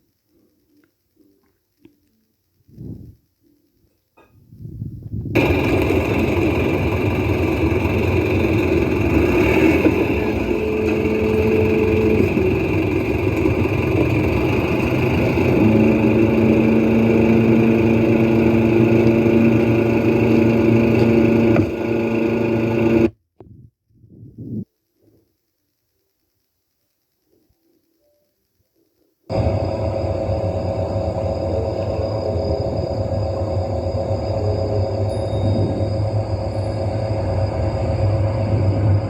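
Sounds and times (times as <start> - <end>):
construction machinery engine: 5.4 - 23.1, 29.3 - 39.0.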